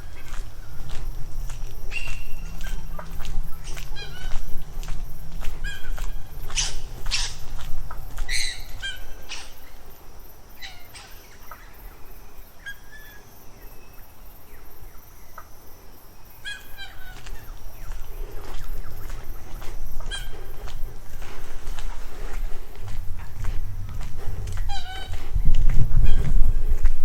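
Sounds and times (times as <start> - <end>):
harsh bird calls: 0.0 - 9.9, 16.4 - 20.8, 24.6 - 26.4.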